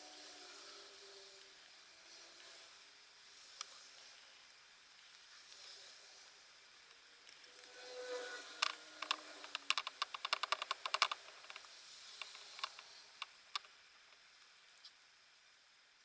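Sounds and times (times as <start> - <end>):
small sharp clicks: 8.5 - 13.8.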